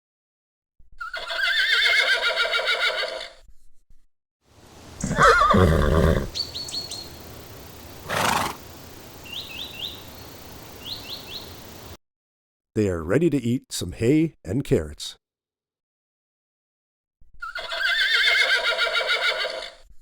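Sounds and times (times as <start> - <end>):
horse whinnying: 1.0 - 3.4, 5.0 - 6.4, 8.0 - 8.6, 17.4 - 19.8
birds chirping: 4.6 - 12.0.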